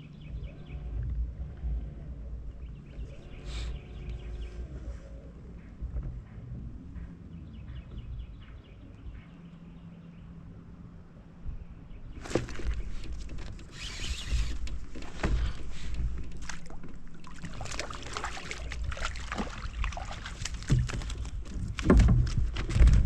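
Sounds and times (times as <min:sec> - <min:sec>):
gear knocking and thumping: 0:20.6 - 0:23.0.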